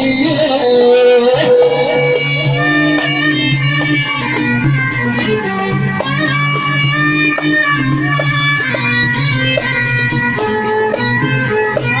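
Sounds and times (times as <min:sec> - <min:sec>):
plucked string melody: 0:00.0 - 0:12.0
steady beat: 0:00.0 - 0:12.0.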